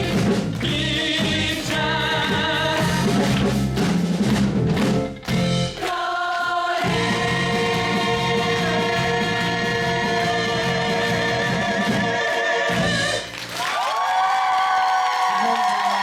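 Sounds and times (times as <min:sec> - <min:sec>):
singers holding a chord: 0:00.0 - 0:03.3, 0:05.7 - 0:13.5
backing track: 0:00.0 - 0:13.6.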